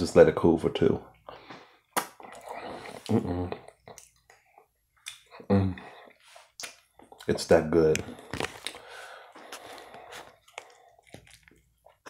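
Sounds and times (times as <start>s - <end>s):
man chewing food: 1.2s - 7.3s, 8.0s - 12.0s
wet mouth clicks and smacks: 1.9s - 5.4s, 6.6s - 7.3s.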